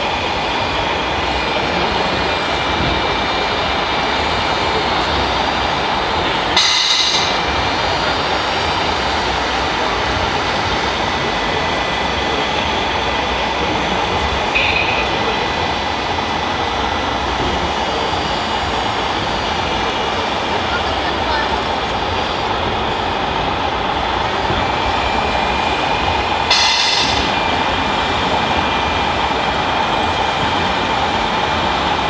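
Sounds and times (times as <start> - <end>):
high-pitched squeal: 26.4 - 29.1.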